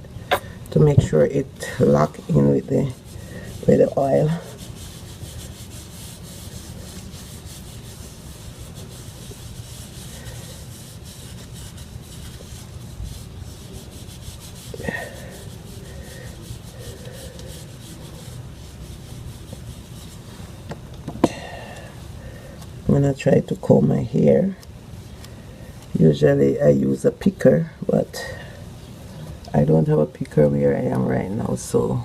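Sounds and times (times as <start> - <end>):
hands rubbing hair: 0.8 - 21.3.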